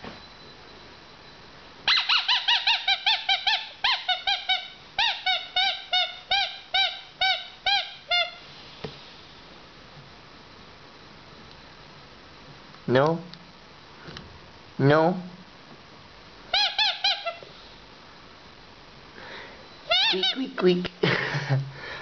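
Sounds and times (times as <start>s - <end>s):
puppy whining and yipping: 1.9s - 8.4s.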